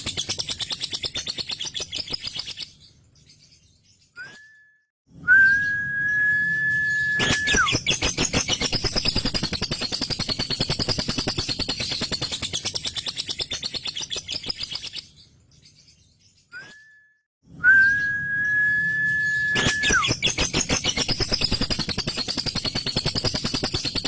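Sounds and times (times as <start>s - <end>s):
bird high whistle: 4.2s - 9.3s, 16.6s - 23.0s
lovebird rapid chatter: 7.2s - 15.0s, 19.6s - 24.0s.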